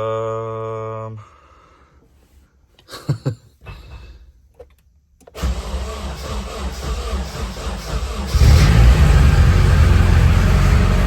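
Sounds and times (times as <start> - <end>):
car engine starting and running: 5.2 - 11.0.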